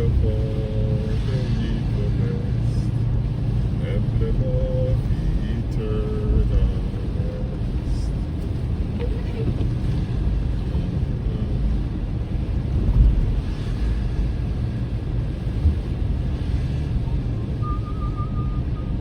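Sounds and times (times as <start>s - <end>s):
car driving rumble: 0.0s - 19.0s
road and tyre noise: 0.0s - 19.0s
faint wavering high tone: 17.6s - 18.9s.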